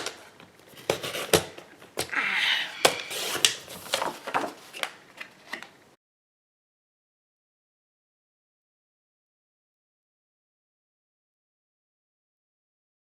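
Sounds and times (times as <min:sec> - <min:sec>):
paper scraping slide: 0:02.8 - 0:04.8.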